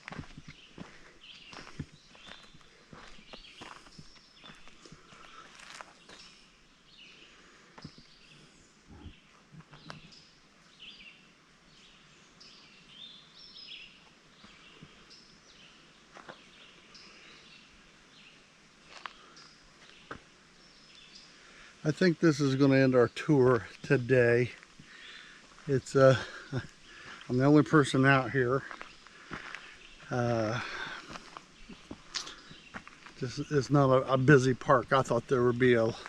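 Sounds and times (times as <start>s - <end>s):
footsteps on trail: 0.0s - 6.4s, 16.1s - 16.7s, 18.8s - 20.3s, 23.5s - 36.0s
faint birdsong chirps: 0.0s - 36.0s.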